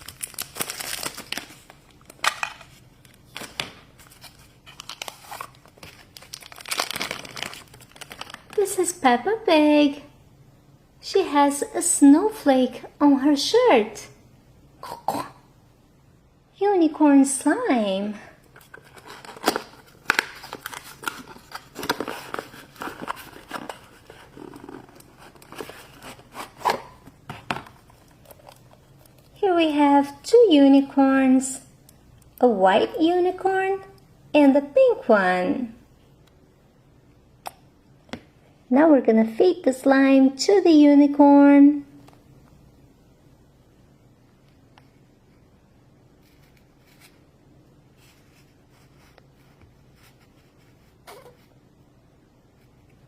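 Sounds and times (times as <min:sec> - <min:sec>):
wrapping crinkling: 0:00.0 - 0:08.7, 0:18.4 - 0:29.4.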